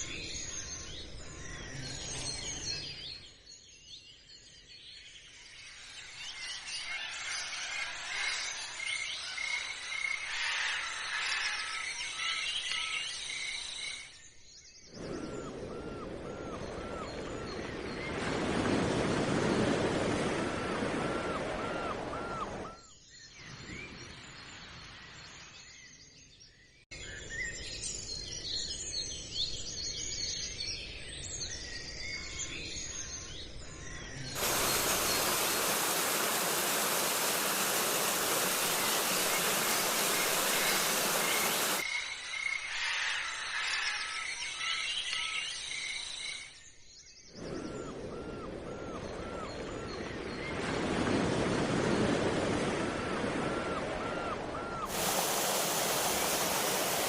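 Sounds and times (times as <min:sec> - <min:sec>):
small birds chirping: 0:32.4 - 0:41.9, 0:54.0 - 0:57.0
outdoor background noise: 0:32.4 - 0:46.5, 0:47.4 - 0:57.0
loud steady hiss: 0:34.4 - 0:41.8, 0:54.9 - 0:57.0.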